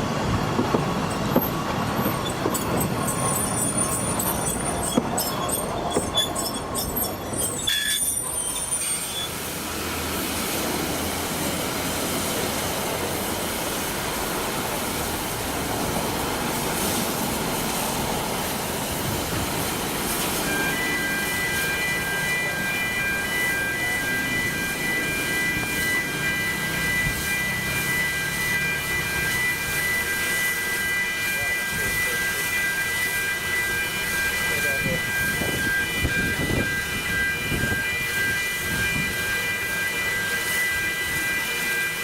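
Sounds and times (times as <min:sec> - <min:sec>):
train flanges squealing: 0:00.0 - 0:42.0
train wheels clicking over rails: 0:00.2 - 0:07.6
high steady tones: 0:20.4 - 0:42.0.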